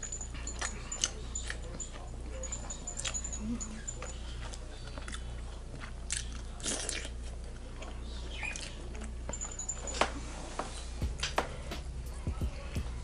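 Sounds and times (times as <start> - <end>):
person chewing seafood: 0.0 - 9.3
steady low hum: 0.0 - 13.0.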